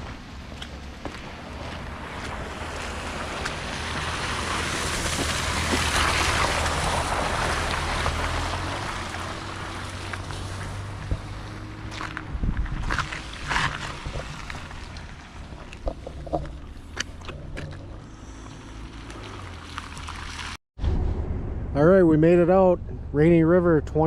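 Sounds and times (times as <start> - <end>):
boat motor humming: 0.0 - 20.6
wind: 0.0 - 24.0
rushing water: 1.5 - 17.8, 18.6 - 20.6.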